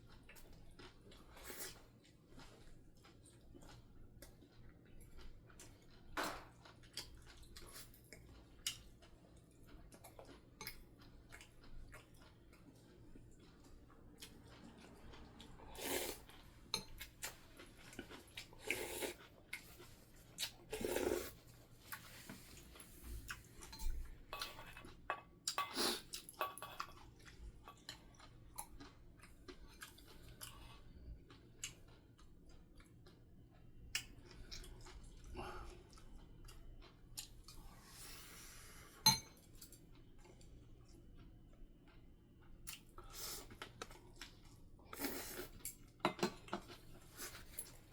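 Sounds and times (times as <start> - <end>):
person chewing: 0.1 - 38.6
cutlery clinking against dishes: 39.1 - 39.5, 46.1 - 46.7.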